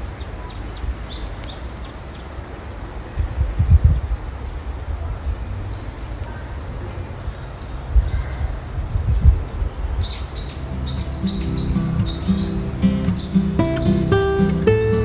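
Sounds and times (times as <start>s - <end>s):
forest birds calling: 0.0s - 4.6s, 5.2s - 15.0s
gentle guitar music: 10.6s - 15.0s.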